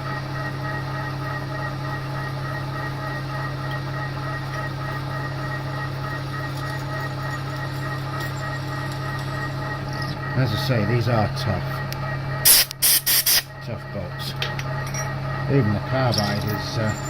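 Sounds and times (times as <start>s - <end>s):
milling machine drilling metal: 6.1s - 10.3s, 15.8s - 17.0s.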